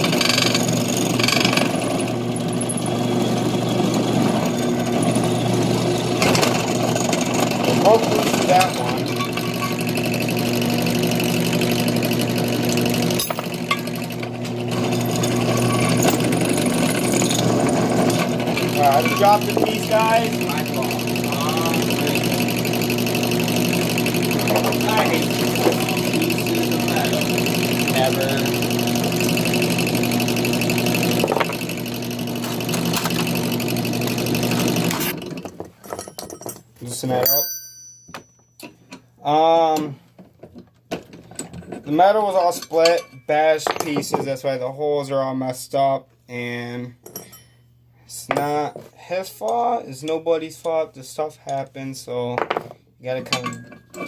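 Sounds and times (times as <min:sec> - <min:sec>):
drill press motor humming: 0:00.0 - 0:35.7.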